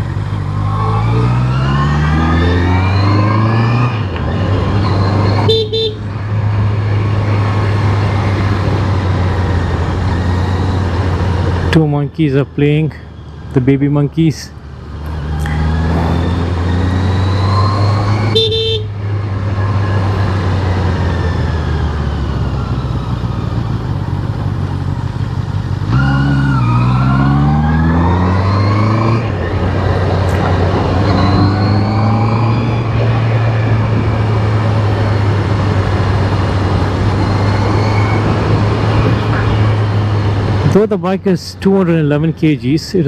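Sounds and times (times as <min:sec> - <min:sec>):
horn toot: 0:05.4 - 0:06.0, 0:18.2 - 0:19.0
wind noise: 0:32.5 - 0:40.6.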